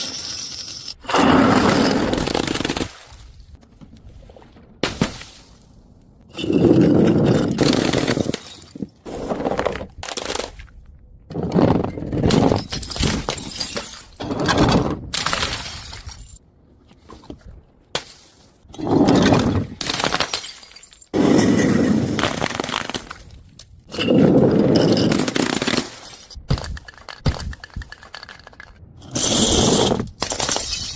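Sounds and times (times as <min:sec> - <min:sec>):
objects crashing and shattering: 0:06.3 - 0:10.5, 0:30.0 - 0:30.9.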